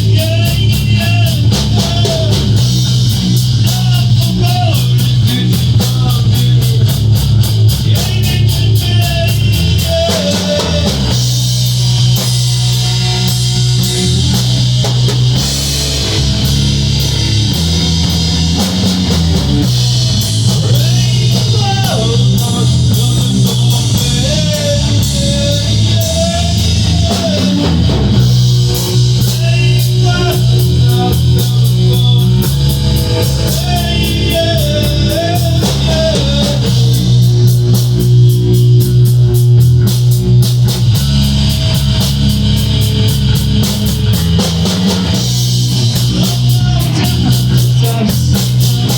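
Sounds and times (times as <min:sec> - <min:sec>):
sung vocal line: 0:00.0 - 0:16.5, 0:18.0 - 0:39.1, 0:44.0 - 0:48.9
rock band playing: 0:00.0 - 0:48.9.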